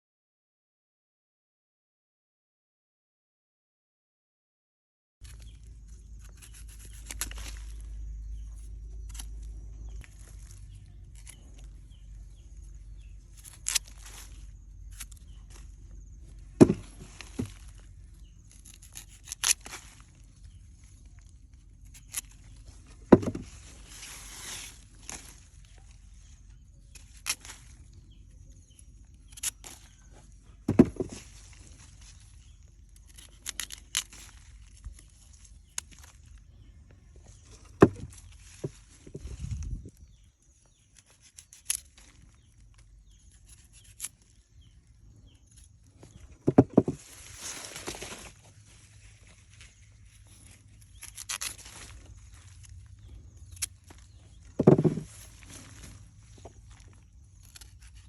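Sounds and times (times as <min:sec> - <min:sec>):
plant material snapping: 0:09.0 - 0:10.0, 0:12.9 - 0:15.6, 0:16.6 - 0:20.6, 0:26.9 - 0:27.8, 0:29.2 - 0:30.1, 0:32.4 - 0:36.2, 0:40.9 - 0:42.1, 0:50.8 - 0:58.0
dull thump: 0:30.7 - 0:31.2, 0:54.6 - 0:55.1.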